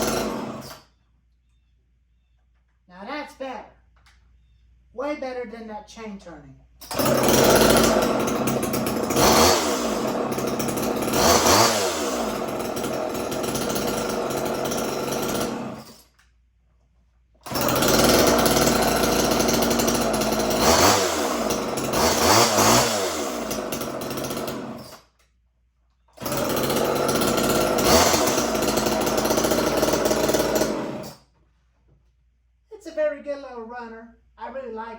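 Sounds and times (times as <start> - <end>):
chainsaw idling and revving: 0.0 - 0.8, 6.8 - 16.2, 17.4 - 25.2, 26.2 - 31.2.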